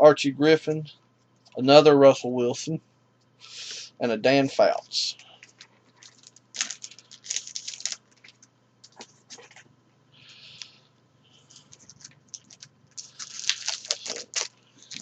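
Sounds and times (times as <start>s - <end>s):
foil wrapper crinkling: 5.4s - 9.6s, 11.5s - 15.0s.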